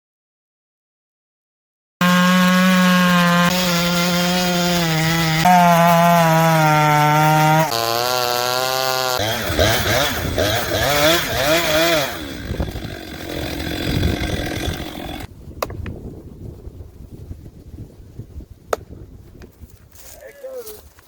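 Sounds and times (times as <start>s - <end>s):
chainsaws running at high revs: 2.0s - 15.3s.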